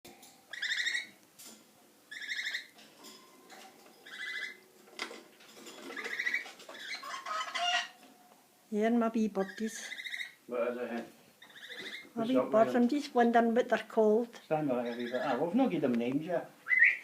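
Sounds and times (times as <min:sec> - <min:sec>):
parrots chattering calls: 0:00.5 - 0:01.2, 0:02.1 - 0:03.2, 0:04.0 - 0:04.7, 0:05.6 - 0:08.0, 0:09.4 - 0:10.5, 0:11.4 - 0:12.6, 0:14.8 - 0:15.5, 0:16.7 - 0:17.0.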